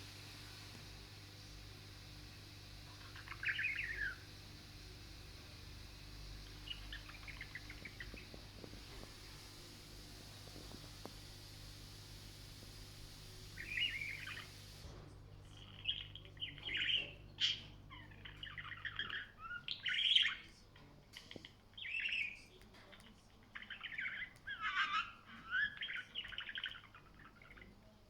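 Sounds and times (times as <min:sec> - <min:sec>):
budgerigar warbling and chattering: 0:01.9 - 0:09.2, 0:15.5 - 0:20.5, 0:23.5 - 0:27.8.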